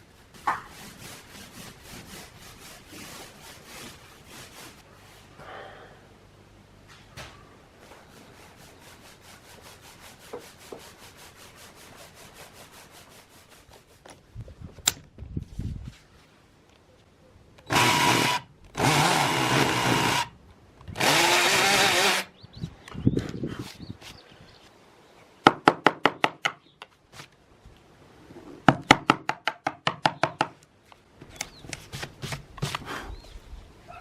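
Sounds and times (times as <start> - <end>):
power drill running: 17.7 - 20.3, 21.0 - 22.3.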